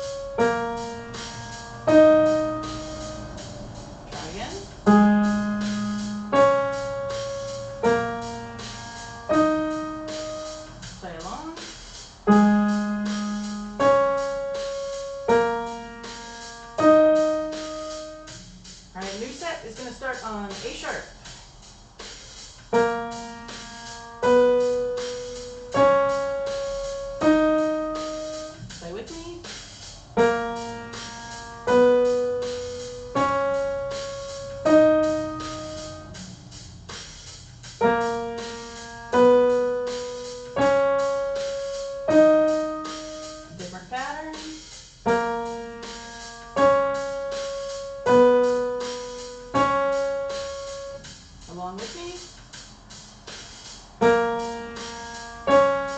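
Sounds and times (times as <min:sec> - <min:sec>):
piano playing single notes: 0:00.0 - 0:10.7.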